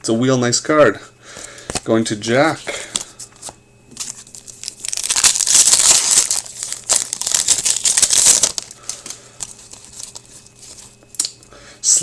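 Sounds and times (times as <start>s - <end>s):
card pack wrapper tearing and crinkling: 2.5s - 11.0s.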